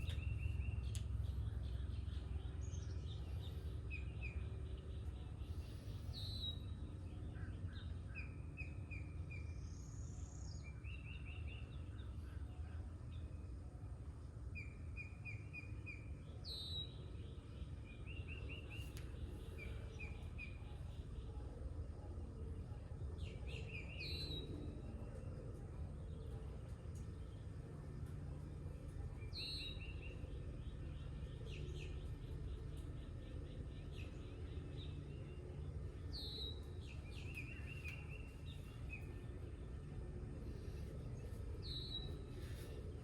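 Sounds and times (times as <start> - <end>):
low outdoor rumble: 0.0 - 43.0
songbirds singing: 0.0 - 43.0.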